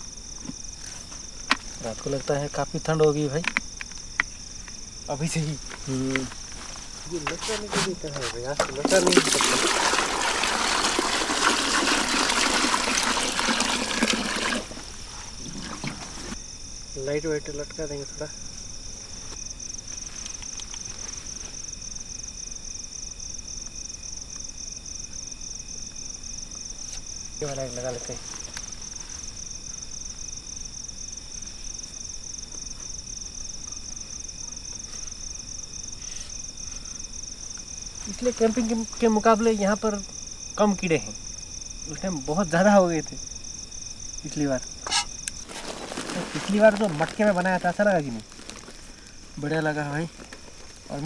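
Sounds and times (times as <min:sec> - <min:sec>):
crickets chirping: 0:00.0 - 0:51.0
water pouring and splashing: 0:07.4 - 0:16.4.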